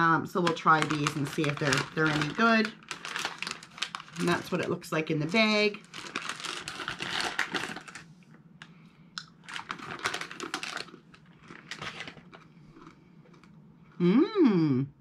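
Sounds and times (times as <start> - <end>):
plastic snack bag crinkling: 0.0 - 8.1, 9.4 - 13.6
person humming: 14.0 - 15.0.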